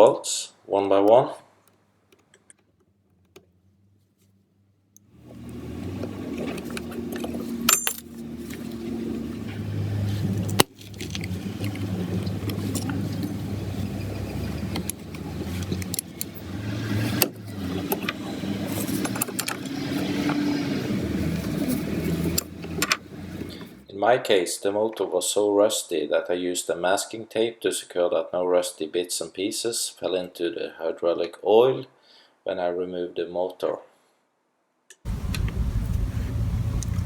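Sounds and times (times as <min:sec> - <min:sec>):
metal clinks and rattles: 0:06.3 - 0:08.8, 0:10.5 - 0:16.4
steady low noise: 0:35.1 - 0:37.0.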